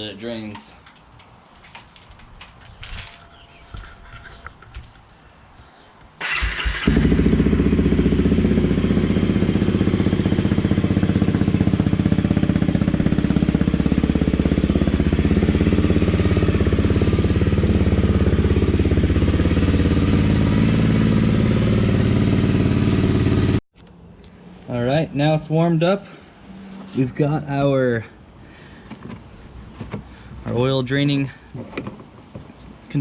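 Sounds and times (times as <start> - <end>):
motorcycle engine starting and idling: 6.2 - 24.0.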